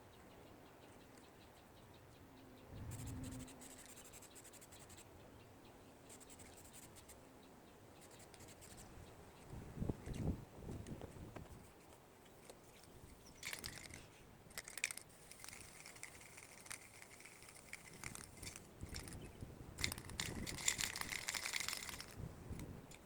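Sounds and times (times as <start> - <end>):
spray paint can hissing: 14.5 - 19.1.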